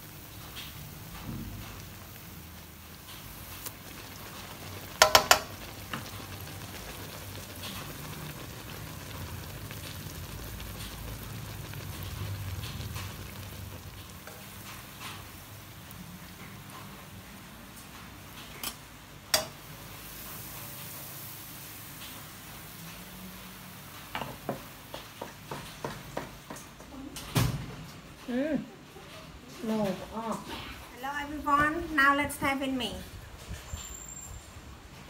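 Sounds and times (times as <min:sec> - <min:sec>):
dough sizzling in hot oil: 0:00.0 - 0:26.8, 0:33.4 - 0:34.9
utensil knocking against pan: 0:05.0 - 0:05.6.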